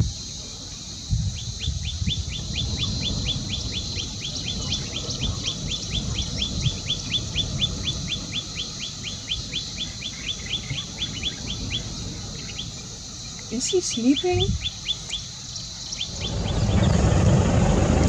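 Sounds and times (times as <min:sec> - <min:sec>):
steady high hiss: 0:00.0 - 0:18.0
low rumble: 0:16.0 - 0:18.0.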